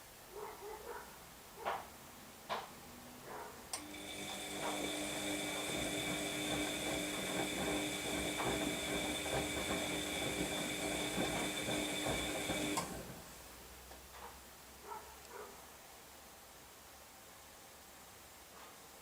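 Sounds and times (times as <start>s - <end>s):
washing machine motor whine: 3.8s - 13.3s.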